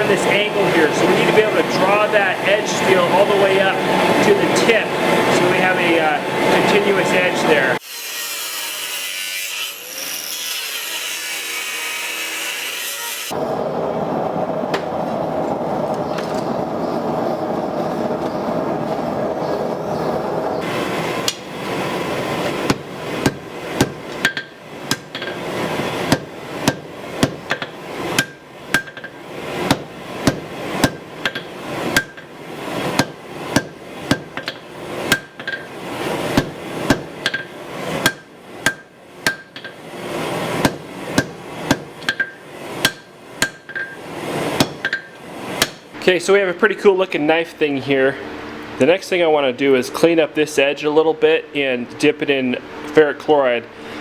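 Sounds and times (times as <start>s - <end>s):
hammer blows on hot steel: 0.0s - 7.8s, 20.6s - 46.0s
steady rushing noise: 0.0s - 7.8s, 13.4s - 24.2s.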